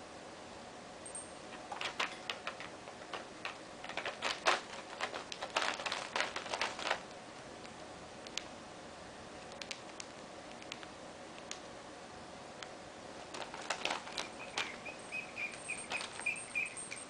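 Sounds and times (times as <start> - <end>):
bird clicking on toy: 13.7 - 17.0.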